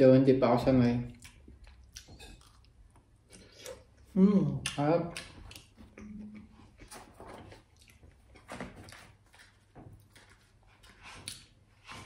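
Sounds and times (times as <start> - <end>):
chewing with wet mouth clicks: 1.1 - 6.5, 7.7 - 8.1.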